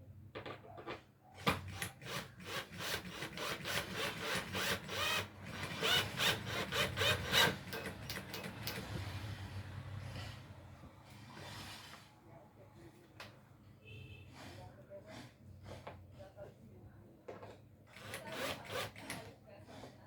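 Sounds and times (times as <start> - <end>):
hand saw cutting wood: 2.5 - 8.8.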